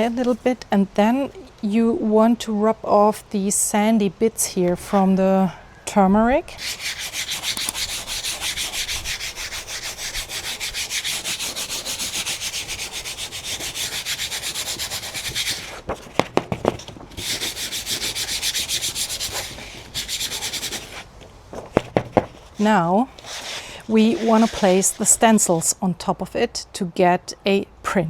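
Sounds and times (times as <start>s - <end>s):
rubbing over dry paper: 6.6s - 16.2s, 17.2s - 21.1s, 22.0s - 25.8s.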